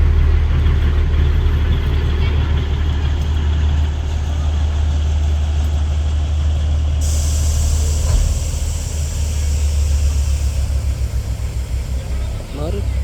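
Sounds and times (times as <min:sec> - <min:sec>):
train rumbling: 0:00.0 - 0:13.0
high hiss: 0:07.0 - 0:13.0.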